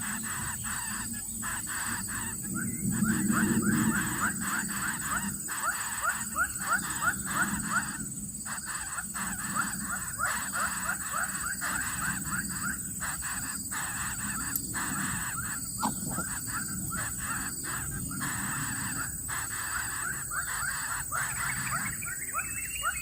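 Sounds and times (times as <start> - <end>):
chicks cheeping: 8.8 - 19.1.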